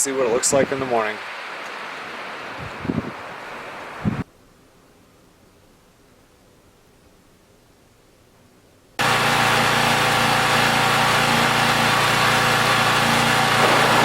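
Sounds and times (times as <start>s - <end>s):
small generator engine running: 9.0s - 14.0s.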